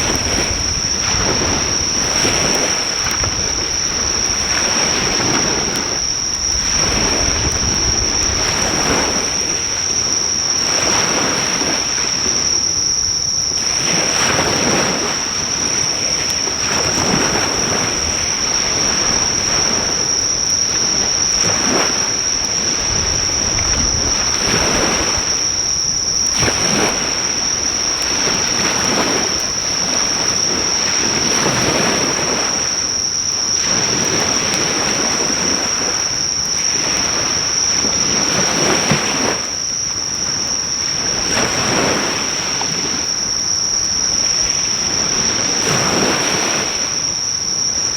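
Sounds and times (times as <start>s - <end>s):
insects chirring: 0.0s - 47.9s
waves breaking on shore: 0.0s - 47.9s.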